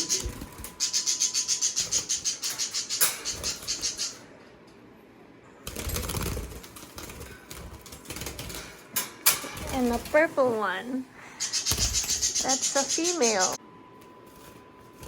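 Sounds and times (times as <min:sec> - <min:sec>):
parakeets chirping: 0:00.0 - 0:04.3, 0:09.5 - 0:13.6.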